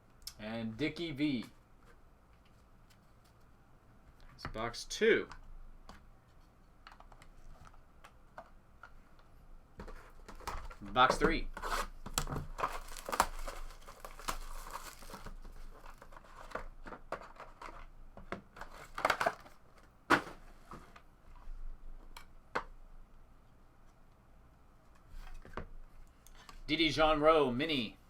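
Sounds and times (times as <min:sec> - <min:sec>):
cards and packaging rustling: 0:09.8 - 0:20.5
packaging tearing and crinkling: 0:11.6 - 0:16.6.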